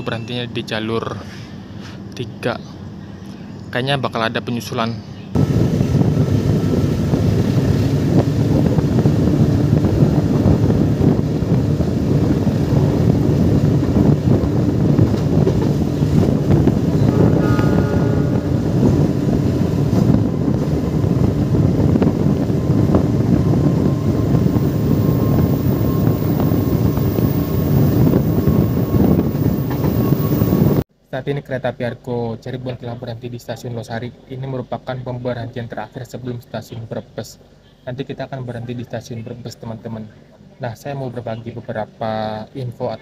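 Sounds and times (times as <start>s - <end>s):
moving train rumbling: 5.0s - 30.9s
wind buffeting microphone: 5.3s - 30.9s
brief higher tone: 17.0s - 19.3s.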